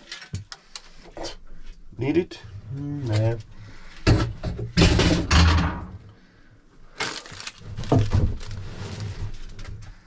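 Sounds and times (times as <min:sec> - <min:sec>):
rustling and knocking: 0:04.0 - 0:06.0, 0:07.6 - 0:10.0.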